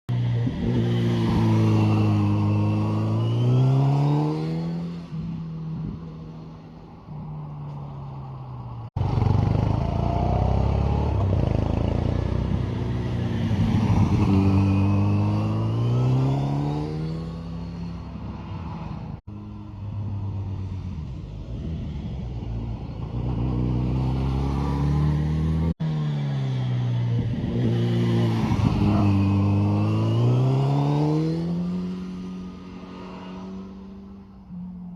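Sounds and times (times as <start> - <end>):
motorcycle engine accelerating: 9.0 - 34.6.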